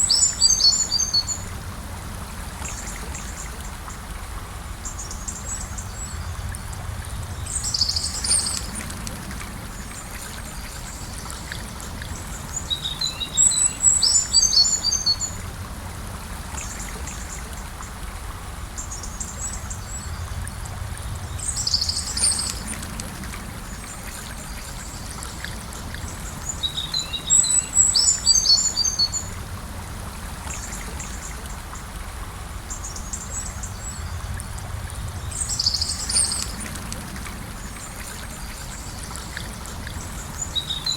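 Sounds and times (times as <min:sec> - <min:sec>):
river flowing: 0:00.0 - 0:40.9
songbirds chirping and twittering: 0:00.0 - 0:40.9.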